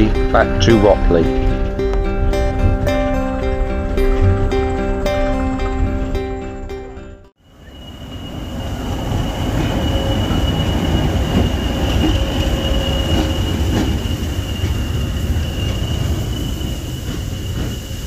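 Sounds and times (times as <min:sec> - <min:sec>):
high-pitched whine: 0:00.0 - 0:18.0
train rumbling: 0:07.4 - 0:18.0.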